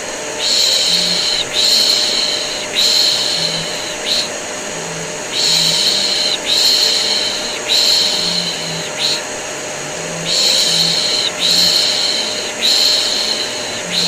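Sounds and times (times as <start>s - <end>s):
vacuum cleaner humming: 0.0s - 14.0s
person shushing: 0.4s - 14.0s.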